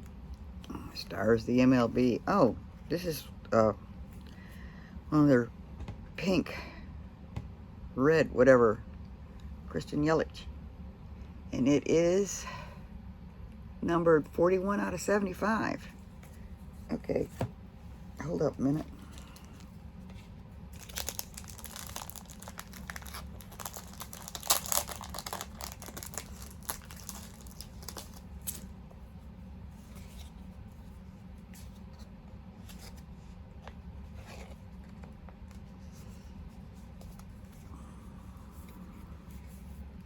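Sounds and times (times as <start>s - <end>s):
packaging crinkling: 18.9s - 28.7s.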